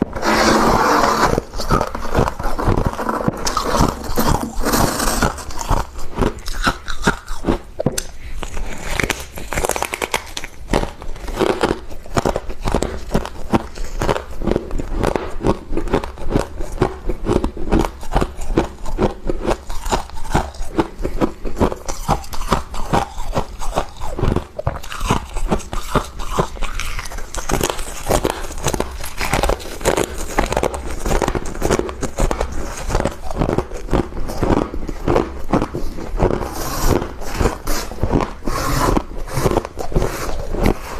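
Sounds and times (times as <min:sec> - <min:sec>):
scraping: 0:00.0 - 0:06.6
crunching and chewing frost: 0:00.0 - 0:40.9.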